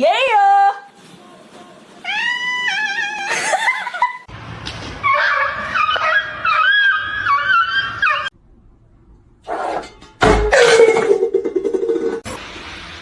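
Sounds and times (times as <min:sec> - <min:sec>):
cat meowing: 0:02.0 - 0:03.4.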